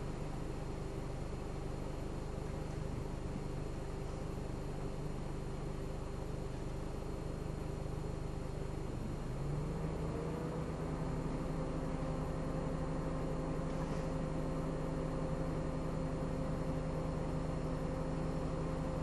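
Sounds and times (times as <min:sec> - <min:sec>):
car engine running: 0:00.0 - 0:19.0
road rumble: 0:08.8 - 0:15.2.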